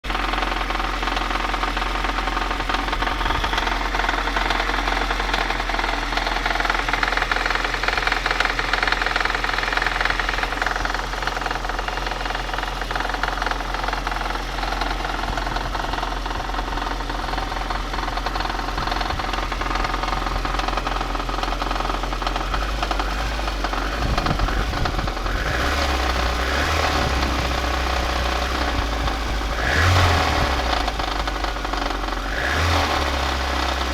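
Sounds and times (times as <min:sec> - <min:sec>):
engine knocking: 0:00.0 - 0:33.9
car engine running: 0:00.1 - 0:33.9.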